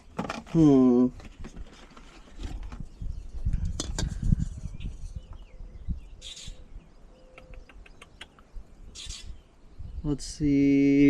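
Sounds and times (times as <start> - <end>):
faint bird chirps: 2.2 - 10.4.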